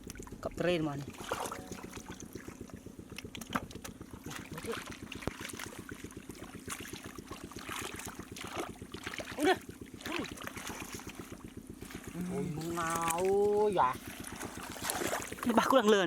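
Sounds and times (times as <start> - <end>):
small engine running: 0.0 - 16.0
water splashing and trickling: 0.0 - 16.0.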